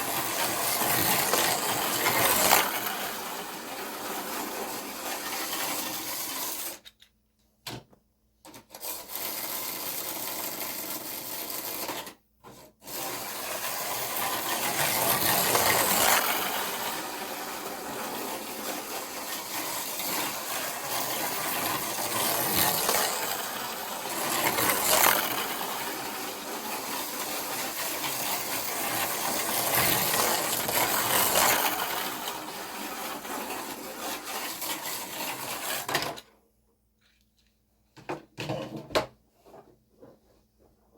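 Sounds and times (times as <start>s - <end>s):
slot cars whirring on track: 0.0s - 6.8s, 12.9s - 35.9s.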